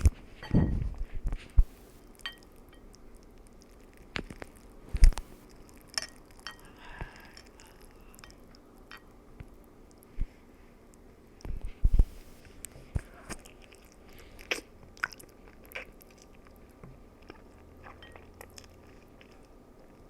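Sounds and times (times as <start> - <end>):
person chewing noodles: 1.9 - 9.1, 12.0 - 20.0.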